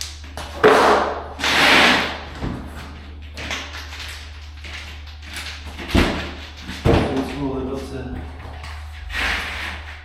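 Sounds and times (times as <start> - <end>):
scraping on concrete floor: 8.3 - 10.0.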